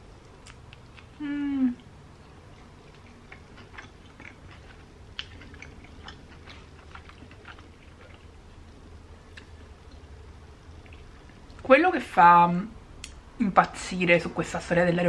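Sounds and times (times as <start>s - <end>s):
person chewing food: 0.1s - 10.1s, 10.7s - 11.6s
person humming: 1.2s - 1.8s.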